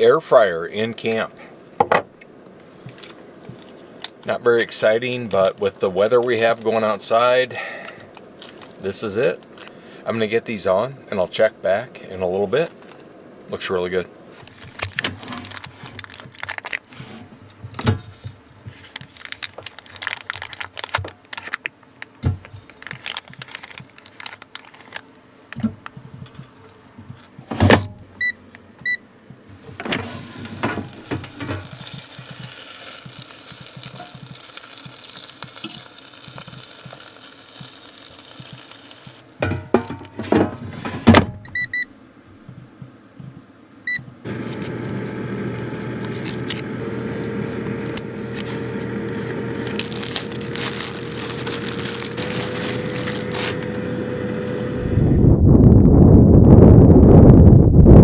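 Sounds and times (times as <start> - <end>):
air fryer fan hissing: 29.7 - 36.0, 44.3 - 55.4.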